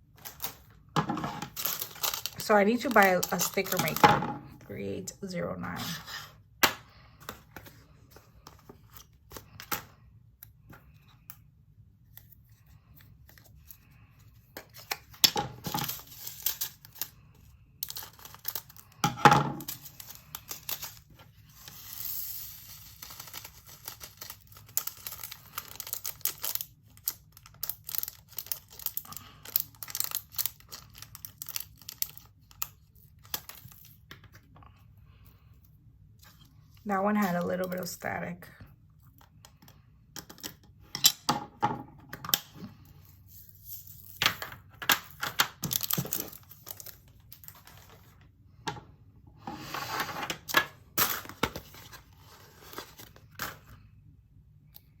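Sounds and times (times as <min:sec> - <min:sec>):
plastic bags crinkling and tearing: 0:00.0 - 0:04.1, 0:12.6 - 0:34.0, 0:45.1 - 0:48.2.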